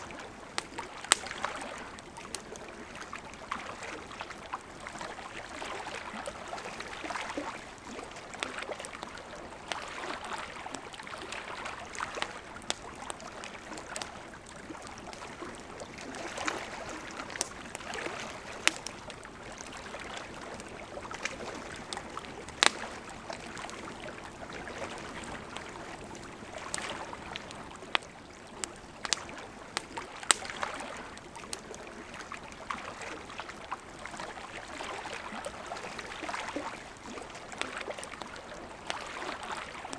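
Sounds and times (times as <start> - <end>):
burning wood crackling and popping: 0.0 - 32.7
campfire flames hissing: 0.2 - 9.0, 9.6 - 32.5.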